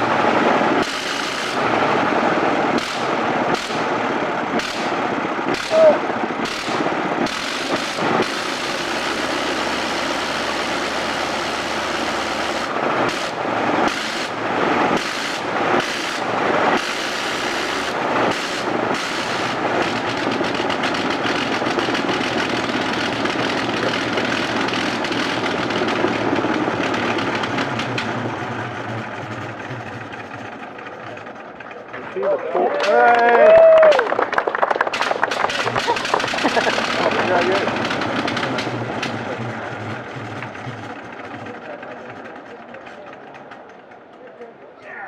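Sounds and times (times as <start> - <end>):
rotary aircraft engine drone: 0.0 - 32.7, 34.1 - 44.8.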